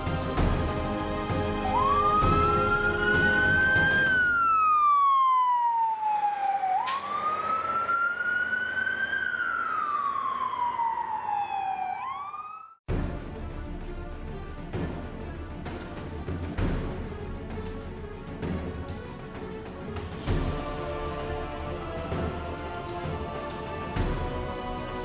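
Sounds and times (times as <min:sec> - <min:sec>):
music: 0:00.0 - 0:04.4, 0:12.9 - 0:25.0
emergency siren wailing: 0:01.4 - 0:12.8.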